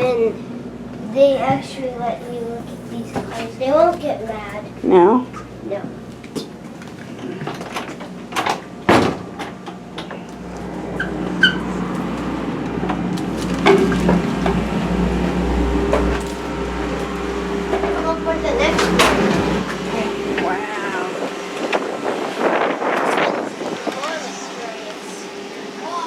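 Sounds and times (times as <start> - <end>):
low mechanical hum and rumble: 0.0 - 26.0.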